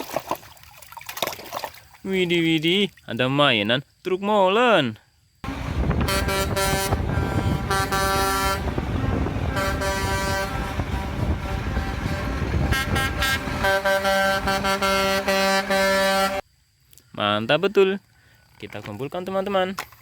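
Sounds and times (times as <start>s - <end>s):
low engine rumble: 5.4s - 16.4s
truck air horn blasts: 5.4s - 16.4s.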